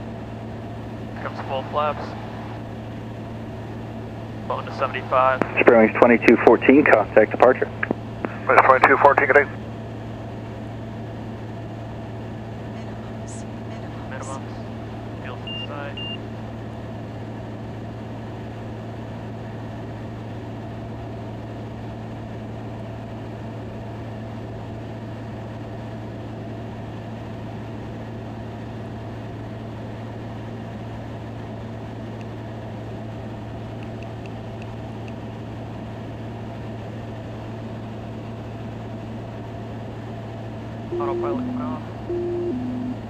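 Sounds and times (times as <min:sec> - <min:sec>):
light aircraft engine drone: 0:00.0 - 0:43.0
faint short high beeps: 0:40.9 - 0:43.0.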